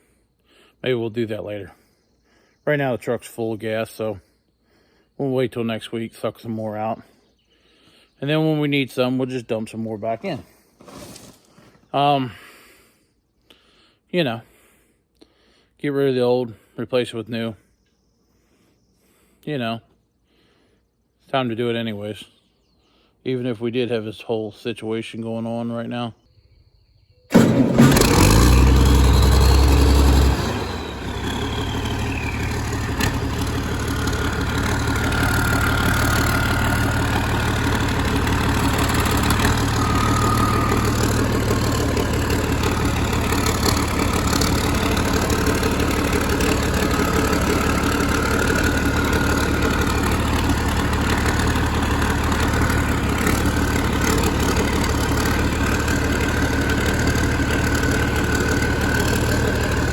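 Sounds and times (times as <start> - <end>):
engine idling: 27.3 - 59.9.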